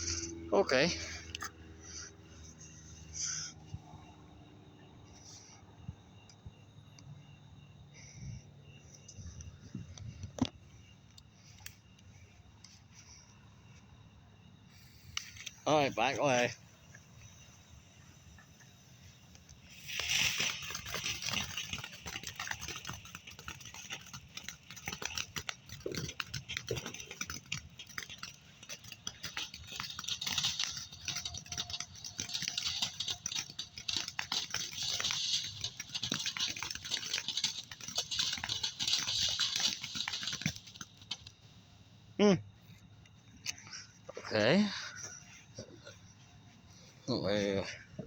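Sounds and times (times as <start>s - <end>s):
firework hissing and crackling: 14.6s - 41.4s.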